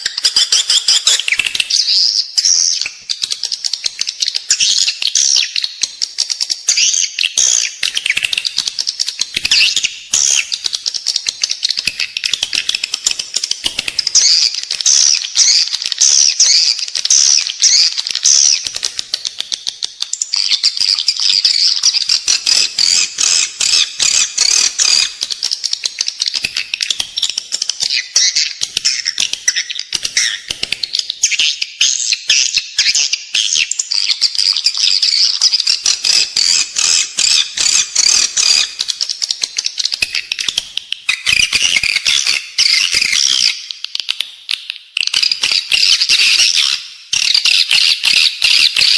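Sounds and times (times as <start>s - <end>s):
swiftlet high twittering calls: 20.4s - 30.5s.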